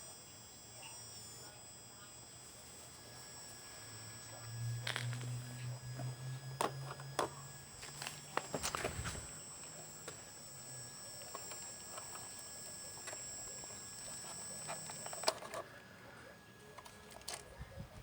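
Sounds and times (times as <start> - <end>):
high-pitched electric motor whine: 0.0 - 18.0
small clicks and knocks: 4.2 - 15.7.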